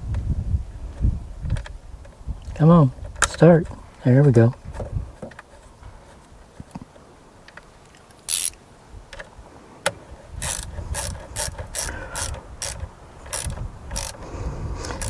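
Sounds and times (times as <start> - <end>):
ratchet wrench clicking: 8.3 - 8.6, 10.4 - 14.2.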